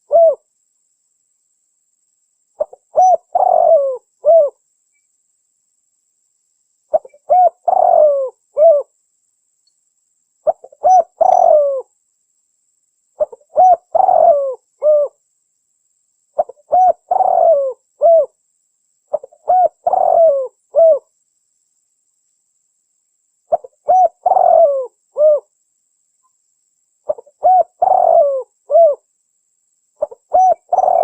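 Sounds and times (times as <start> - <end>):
dove cooing: 0.0 - 0.4, 2.6 - 4.6, 6.9 - 8.9, 10.4 - 11.9, 13.2 - 15.2, 16.4 - 18.4, 19.1 - 21.1, 23.5 - 25.5, 27.1 - 29.0, 30.0 - 31.0.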